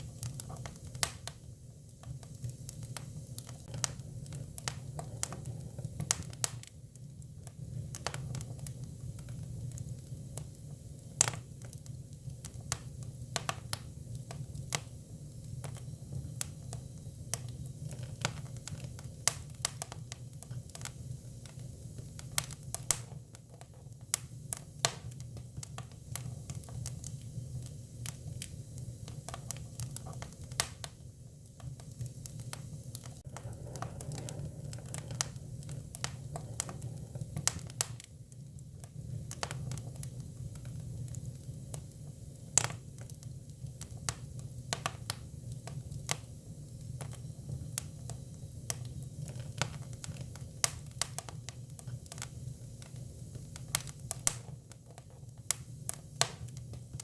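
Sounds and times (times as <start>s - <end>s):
firewood crackling and popping: 0.0s - 57.0s
low fire rumble: 0.0s - 57.0s.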